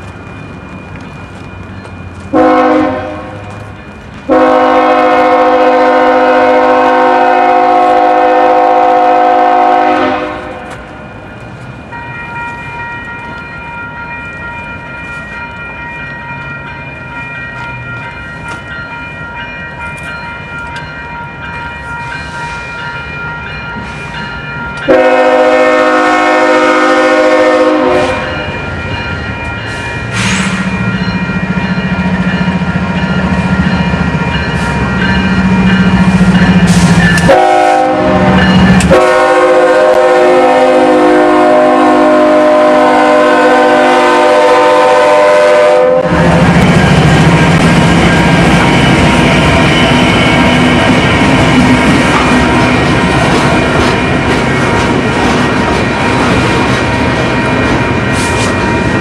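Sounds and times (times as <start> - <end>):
train running: 0.0 - 59.0
locomotive air horn: 2.3 - 3.4, 4.3 - 10.7, 24.9 - 28.3, 36.7 - 46.4.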